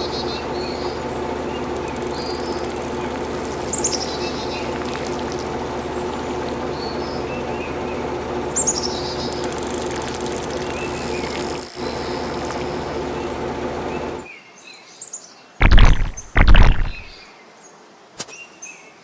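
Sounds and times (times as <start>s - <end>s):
birds chirping: 0.0s - 14.2s, 15.6s - 17.2s
steady mechanical hum: 0.0s - 14.3s
loud short thumps: 15.6s - 17.1s.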